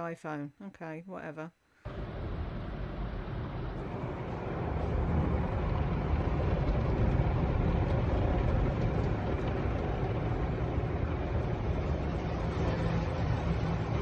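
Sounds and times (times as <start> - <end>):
car cabin road and engine rumble: 1.9 - 14.0.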